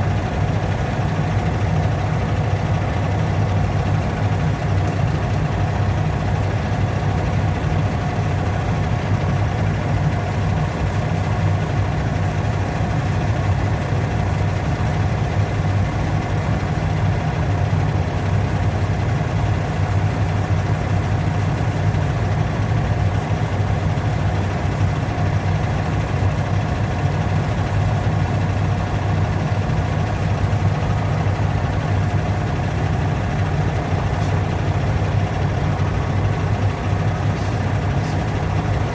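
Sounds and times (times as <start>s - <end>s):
motor humming: 29.9s - 38.9s.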